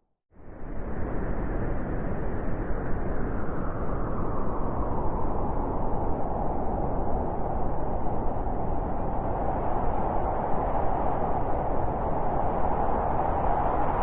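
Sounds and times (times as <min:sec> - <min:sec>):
wind blowing: 0:00.7 - 0:14.0.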